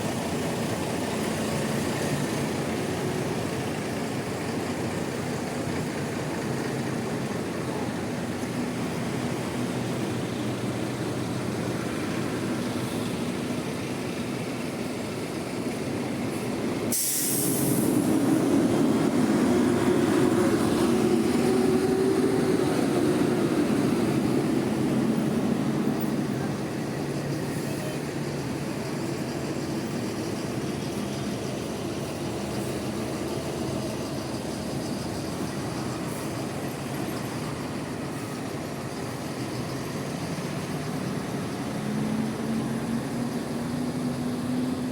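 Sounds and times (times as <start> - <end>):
bus engines running: 0.0 - 44.9
short sharp hiss: 16.9 - 17.9.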